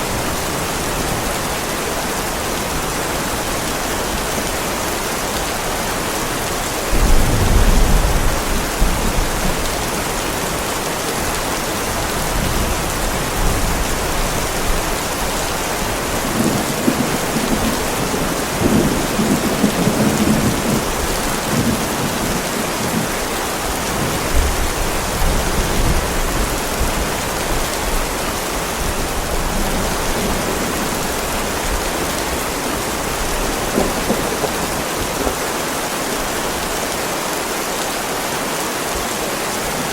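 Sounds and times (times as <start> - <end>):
heavy rain on a driveway: 0.0 - 39.9
rolling thunder: 6.9 - 9.8.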